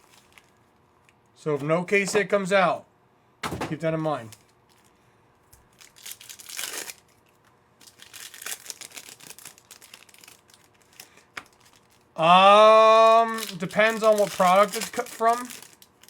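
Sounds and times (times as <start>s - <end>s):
foil wrappers tearing and crinkling: 0.0s - 0.6s, 5.6s - 12.2s, 12.8s - 16.0s
man's voice: 12.2s - 15.5s.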